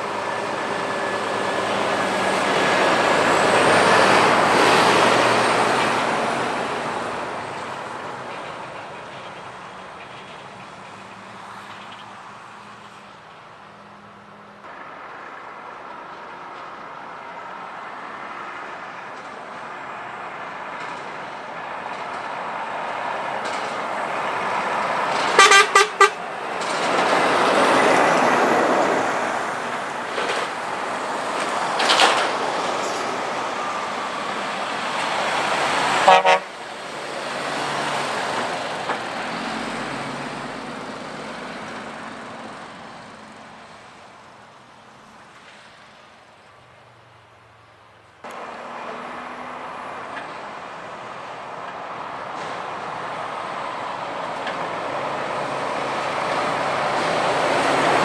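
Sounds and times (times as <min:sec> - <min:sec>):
heavy trucks passing: 0:00.0 - 0:58.0
truck horn toots: 0:25.3 - 0:26.3, 0:35.8 - 0:36.6.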